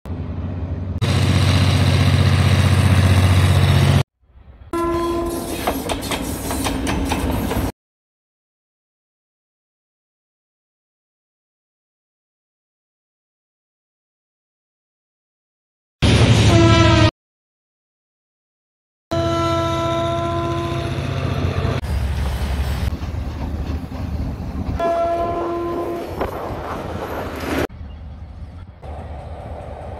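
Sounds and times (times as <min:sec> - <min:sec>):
train horn note: 0:04.7 - 0:05.6, 0:16.4 - 0:17.1, 0:19.1 - 0:21.1, 0:24.8 - 0:26.2
locomotive engine rumble: 0:20.4 - 0:29.9.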